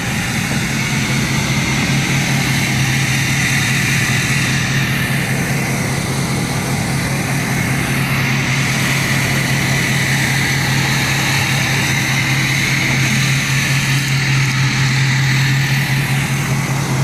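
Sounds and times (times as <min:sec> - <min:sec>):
mechanical drone with hiss: 0:00.0 - 0:17.0.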